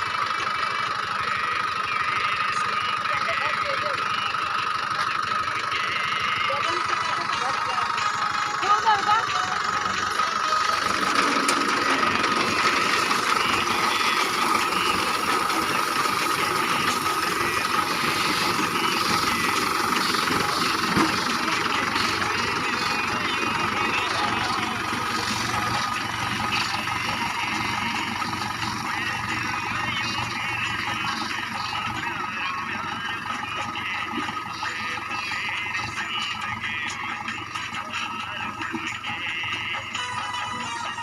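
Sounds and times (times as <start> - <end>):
tractor engine running: 0.0 - 41.0
high whine: 1.2 - 37.4.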